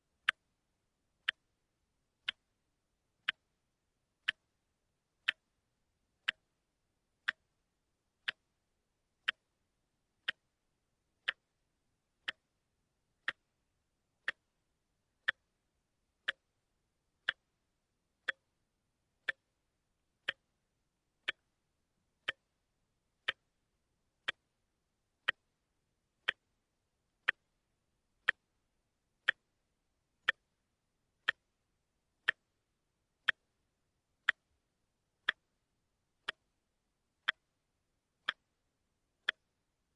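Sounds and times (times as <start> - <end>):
wristwatch ticking: 0.2 - 0.6, 1.2 - 2.5, 3.1 - 5.6, 6.2 - 8.6, 9.2 - 10.6, 11.2 - 12.6, 13.2 - 18.6, 19.2 - 39.9.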